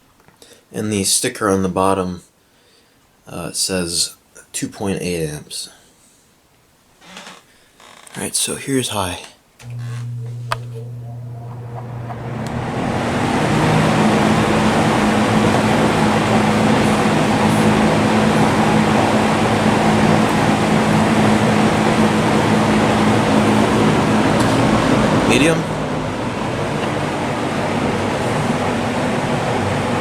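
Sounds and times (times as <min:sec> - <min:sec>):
box fan running on high: 0:09.6 - 0:30.0.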